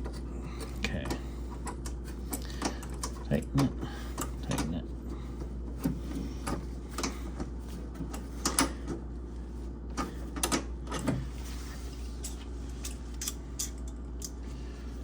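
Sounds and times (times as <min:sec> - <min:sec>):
steady low hum: 0:00.0 - 0:15.0
metallic wrench clicks and taps: 0:12.8 - 0:14.4.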